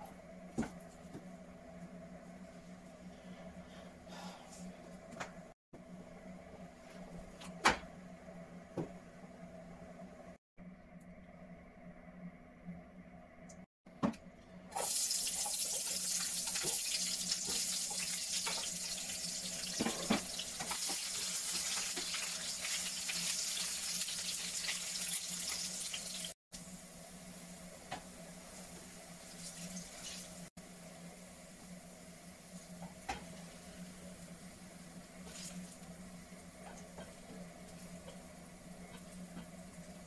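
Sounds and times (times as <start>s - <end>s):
onions sizzling in a frying pan: 14.7s - 27.6s, 28.2s - 30.5s.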